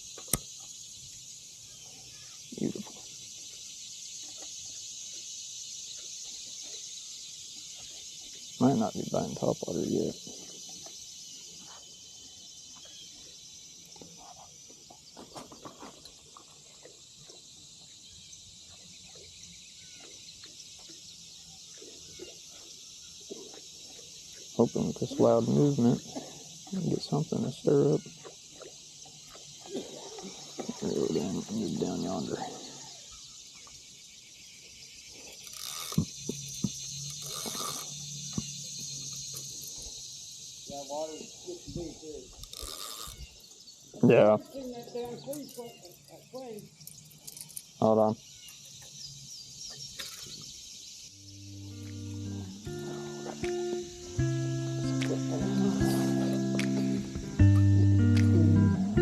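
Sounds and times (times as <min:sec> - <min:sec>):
high insect drone: 0:00.0 - 0:59.0
small water splashes: 0:28.0 - 0:31.3
low steady hum: 0:51.2 - 0:59.0.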